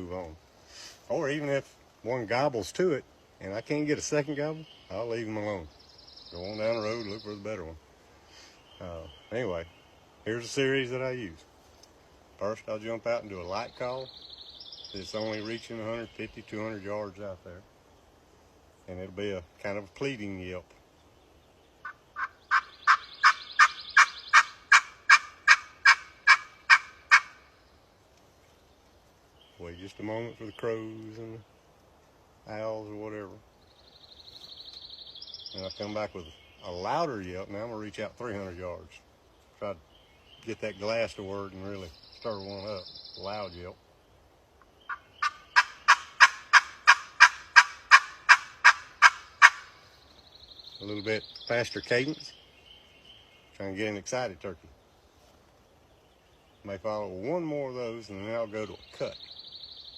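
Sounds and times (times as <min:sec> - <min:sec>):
turkey call hen yelps: 0:21.8 - 0:27.4, 0:44.9 - 0:49.8.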